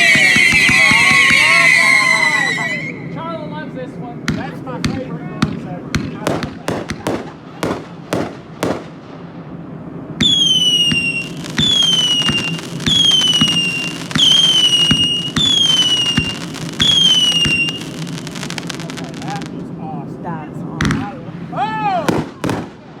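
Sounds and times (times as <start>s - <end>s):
crackling firework pops: 0.0s - 1.7s, 4.3s - 9.0s, 10.2s - 19.6s, 20.8s - 21.2s, 22.1s - 22.8s
firework shots: 0.0s - 2.9s, 4.2s - 19.7s, 20.7s - 23.0s
whistling firework shots: 0.0s - 3.4s, 4.3s - 9.3s, 10.2s - 19.6s, 20.8s - 21.3s, 22.0s - 23.0s.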